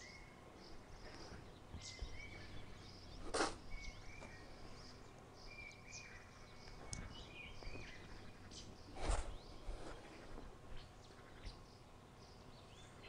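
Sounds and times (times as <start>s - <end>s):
small birds chirping: 0.0s - 13.0s
brief rustle: 8.9s - 10.5s.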